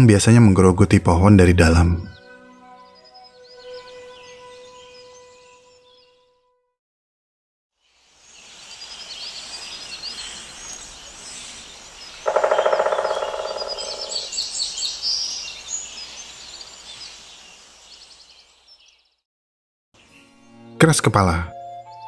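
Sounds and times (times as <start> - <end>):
small birds chirping: 7.8 - 19.2
bird rapid repeated low notes: 12.2 - 14.4.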